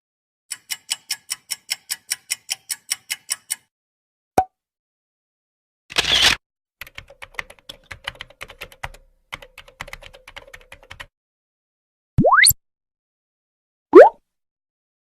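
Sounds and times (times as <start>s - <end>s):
computer keyboard typing: 6.8s - 11.1s.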